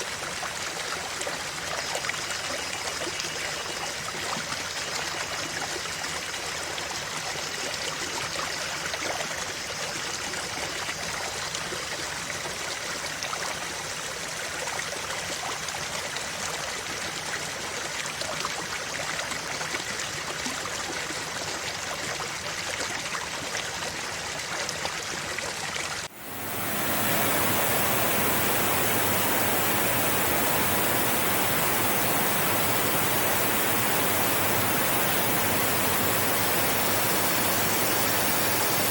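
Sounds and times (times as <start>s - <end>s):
stream of water babbling: 0.0s - 38.9s
smooth rushing noise: 26.1s - 38.9s.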